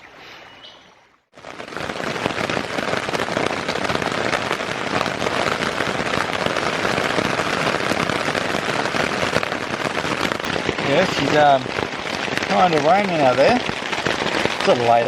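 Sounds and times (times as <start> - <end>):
heavy rain pouring: 1.3 - 15.0.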